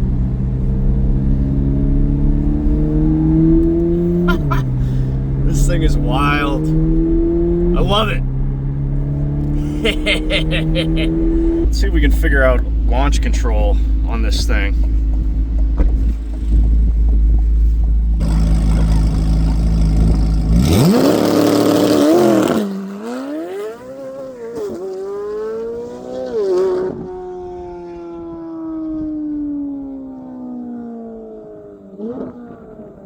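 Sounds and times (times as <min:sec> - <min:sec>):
loud sports car engine revving: 0:00.8 - 0:14.6, 0:18.1 - 0:27.4.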